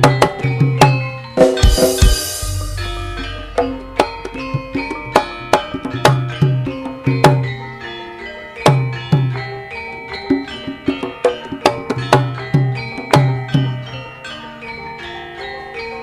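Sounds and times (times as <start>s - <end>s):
metallophones ringing: 0.0s - 16.0s
deep drum strokes: 1.5s - 5.7s.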